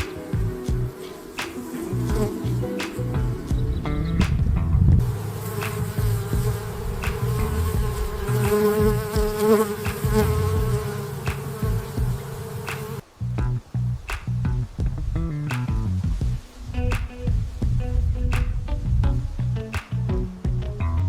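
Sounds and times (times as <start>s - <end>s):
insect buzzing: 0.0s - 4.2s, 5.0s - 13.0s.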